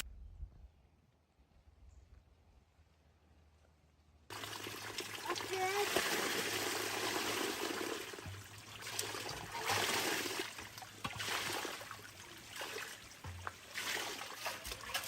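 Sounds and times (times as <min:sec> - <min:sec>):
water trickling and splashing: 0:04.3 - 0:15.0.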